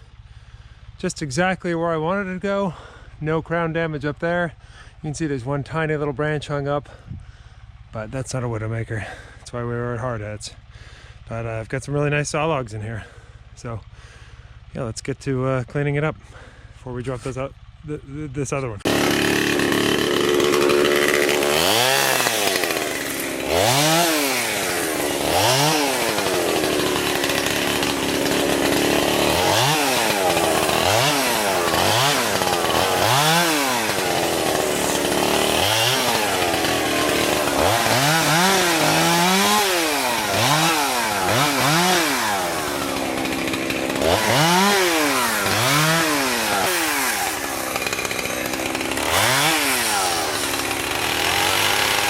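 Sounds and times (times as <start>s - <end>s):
chainsaw revving: 18.8s - 52.0s.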